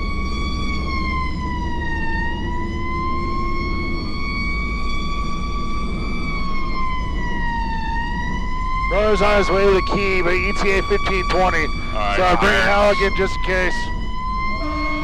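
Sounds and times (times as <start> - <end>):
fire engine siren wailing: 0.0 - 15.0.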